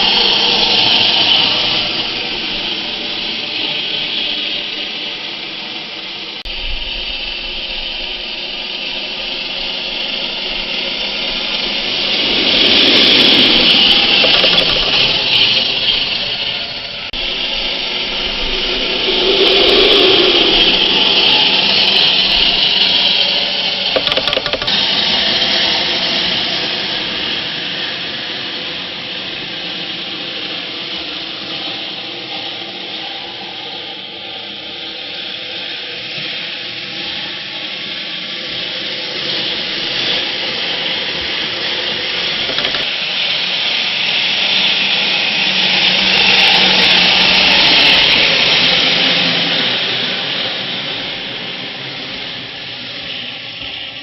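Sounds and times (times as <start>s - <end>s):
rc truck motor whirring: 6.6s - 25.0s, 39.3s - 43.0s.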